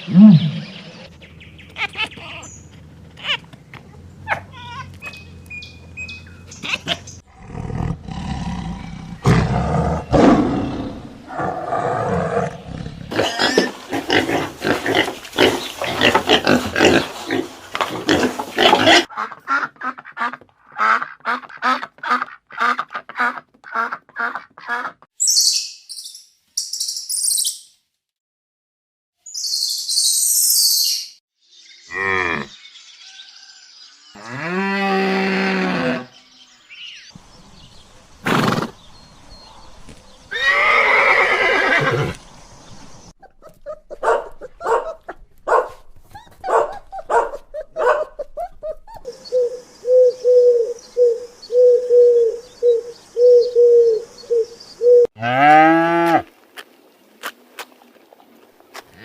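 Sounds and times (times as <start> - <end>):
pitched animal calls: 1.7 - 5.4, 46.0 - 56.2
short high animal chirps: 25.2 - 27.7.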